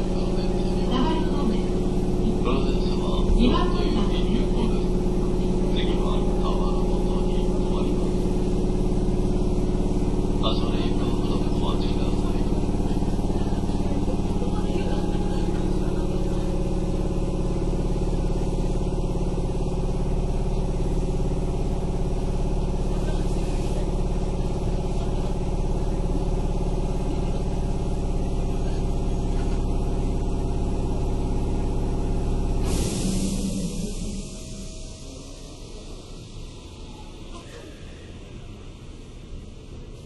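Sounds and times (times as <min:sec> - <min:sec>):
train air compressor running: 0:00.0 - 0:40.0
hiss of released air: 0:32.6 - 0:36.5.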